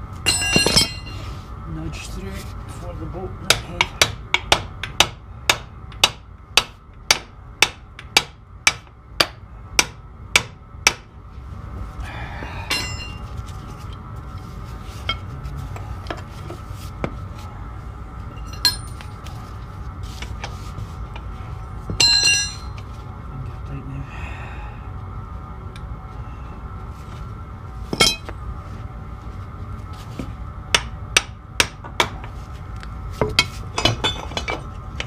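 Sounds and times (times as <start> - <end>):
loud ringing metal clank: 0.2 - 1.2, 12.7 - 13.2, 18.4 - 19.0, 22.0 - 22.8.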